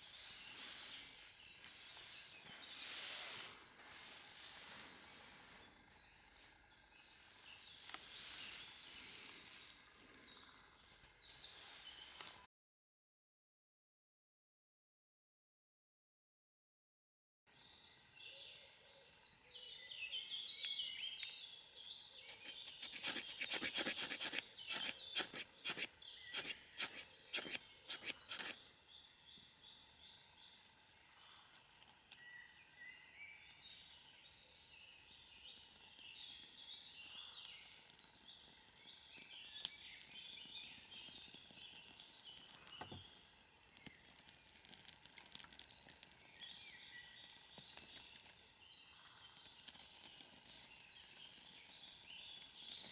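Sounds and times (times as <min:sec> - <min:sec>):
songbirds chirping and singing: 0:00.0 - 0:12.3, 0:17.5 - 0:52.9.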